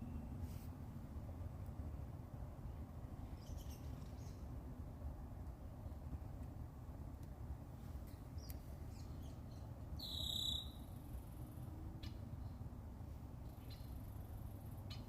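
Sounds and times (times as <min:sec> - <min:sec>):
short bird call notes: 0:10.0 - 0:10.8
buzzy bird trill: 0:10.0 - 0:10.9.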